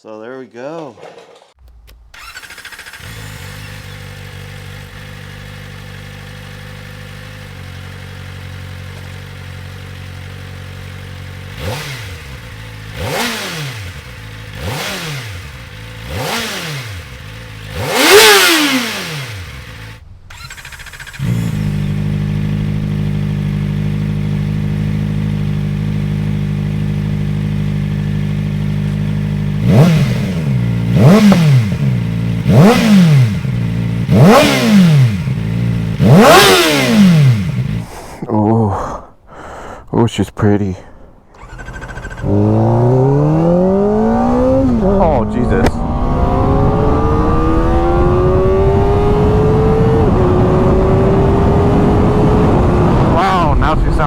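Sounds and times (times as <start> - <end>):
motorcycle engine idling and revving: 2.1 - 38.0, 41.3 - 54.0.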